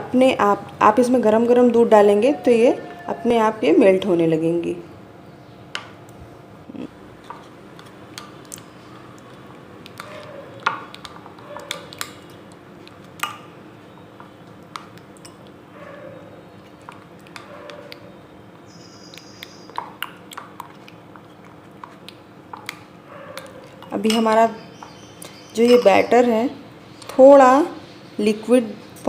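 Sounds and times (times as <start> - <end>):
spoon clinking against a bowl: 14.8 - 15.5, 23.4 - 25.0, 25.6 - 26.1.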